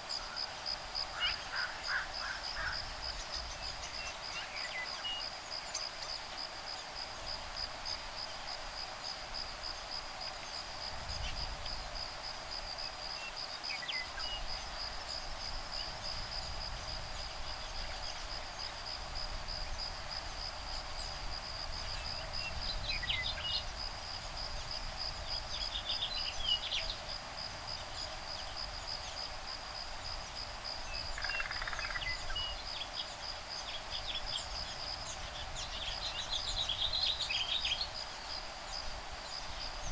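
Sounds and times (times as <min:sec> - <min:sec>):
insects trilling: 0:00.1 - 0:39.9
wind rumble on microphone: 0:10.7 - 0:12.9, 0:14.2 - 0:32.8.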